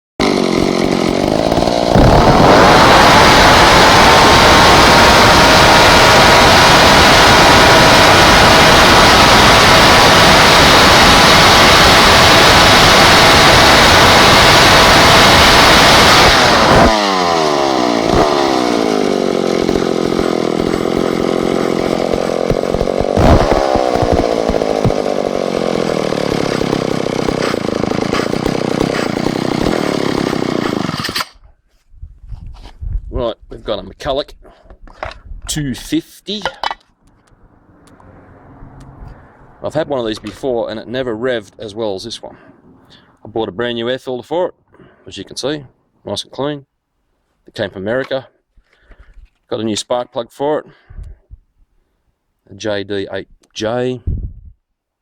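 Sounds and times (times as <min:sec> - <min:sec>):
chainsaw idling and revving: 0:00.2 - 0:31.4.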